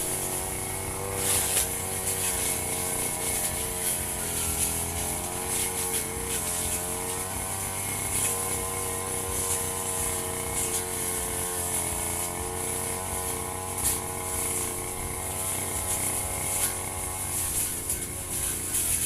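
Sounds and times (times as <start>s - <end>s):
brush cutter engine running: 0.0s - 19.0s
cutting head swishing grass: 0.0s - 19.0s.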